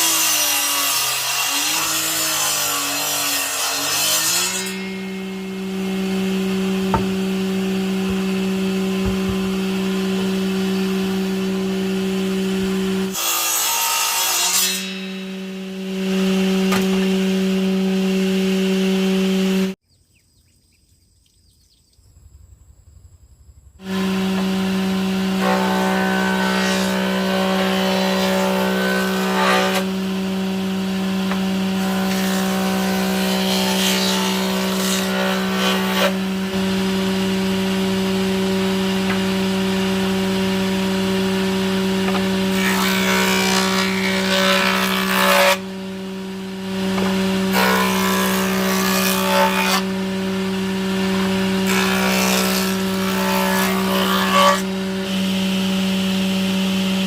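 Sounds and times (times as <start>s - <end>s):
tool rasping through wood: 0.0s - 15.0s
power tool humming: 0.0s - 19.8s, 23.8s - 57.0s.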